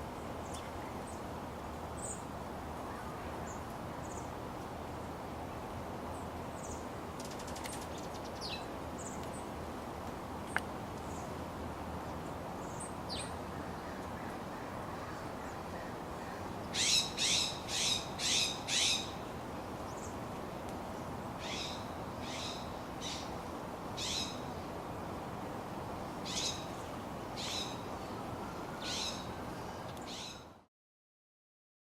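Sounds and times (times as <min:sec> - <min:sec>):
steady background hiss: 0:00.0 - 0:30.7
bird calling sharp high calls: 0:16.3 - 0:19.2, 0:21.4 - 0:23.3, 0:28.7 - 0:30.4.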